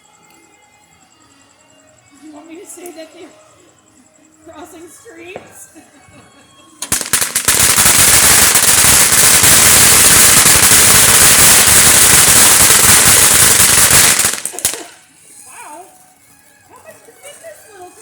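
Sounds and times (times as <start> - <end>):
firecrackers banging: 6.8 - 15.2.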